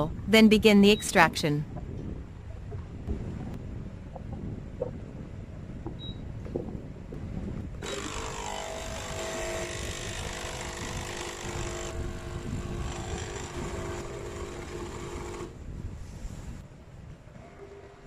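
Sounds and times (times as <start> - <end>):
coffee machine humming and hissing: 10.7 - 15.5.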